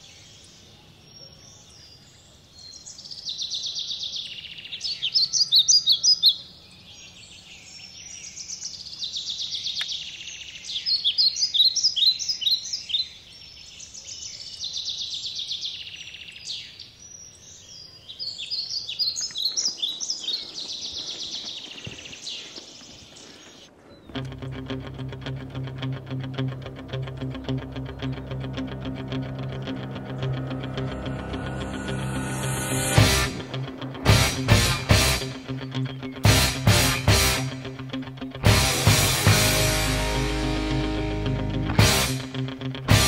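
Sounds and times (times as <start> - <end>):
birds singing in fast trills: 0.0 - 24.2.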